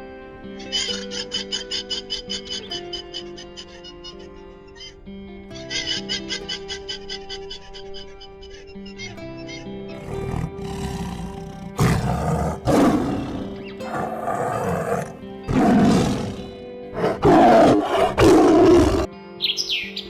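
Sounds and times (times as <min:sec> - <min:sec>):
soft background music: 0:00.0 - 0:20.0
large animal roaring: 0:10.0 - 0:19.1.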